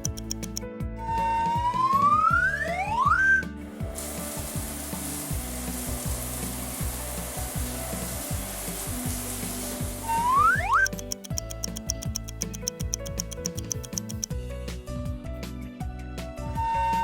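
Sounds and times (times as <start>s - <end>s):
bouncy cartoon music: 0.0s - 3.6s, 7.0s - 14.5s
rising whistle glides: 1.0s - 3.4s
water jet spraying hiss: 3.8s - 11.1s.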